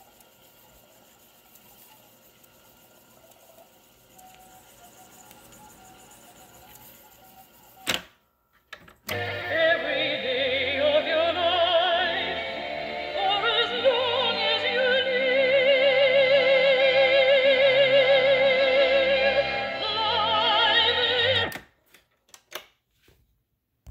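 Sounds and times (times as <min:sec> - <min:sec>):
musical accompaniment: 0:09.1 - 0:21.6
operatic singing with vibrato: 0:09.1 - 0:21.6.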